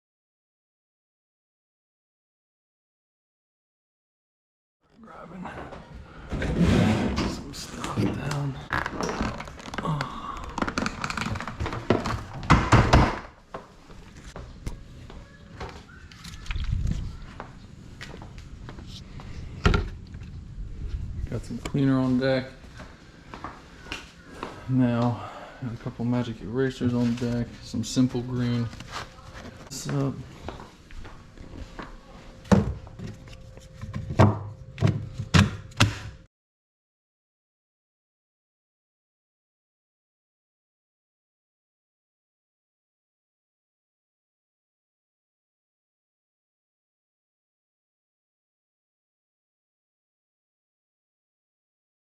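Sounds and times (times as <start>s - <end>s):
objects knocking and thudding: 8.9s - 13.6s, 32.5s - 36.2s.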